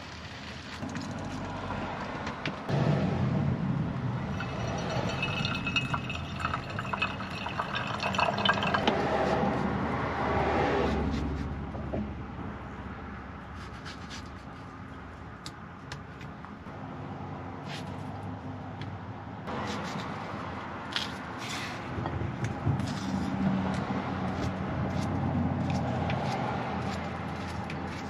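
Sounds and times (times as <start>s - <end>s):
liquid pouring into container: 4.3s - 9.0s.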